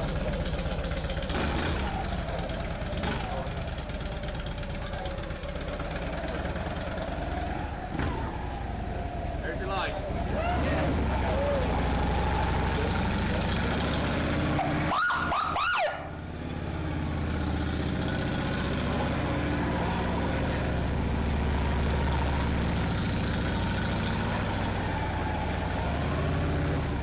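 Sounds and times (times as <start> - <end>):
motorcycle engine running: 0.0 - 27.0
siren whoops: 5.9 - 13.7, 14.5 - 16.2, 18.9 - 27.0.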